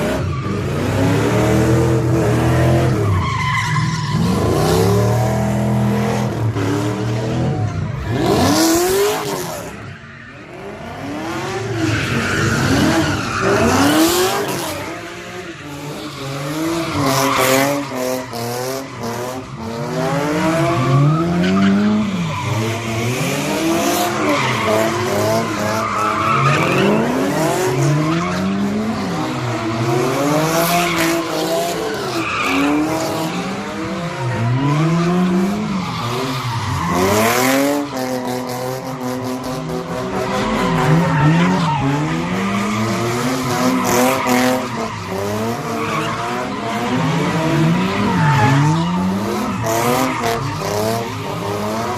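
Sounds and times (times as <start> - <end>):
car engine revving: 10.4 - 51.9.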